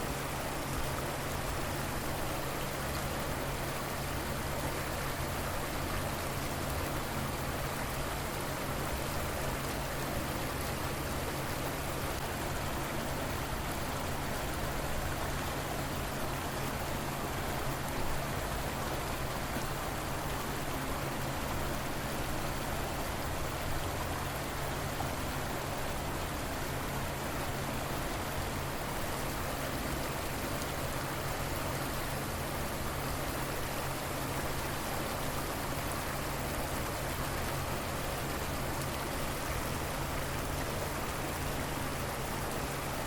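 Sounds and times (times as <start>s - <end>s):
river water flowing: 0.0s - 43.0s.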